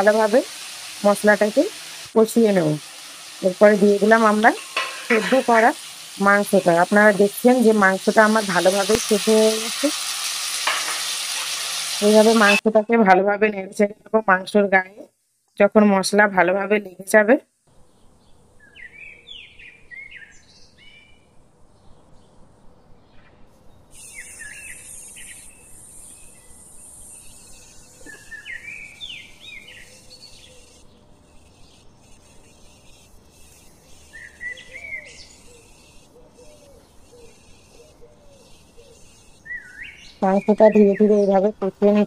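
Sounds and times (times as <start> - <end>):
birds chirping: 0.0 - 12.6, 17.8 - 42.0
steel spatula scraping: 4.1 - 7.0, 9.9 - 12.6.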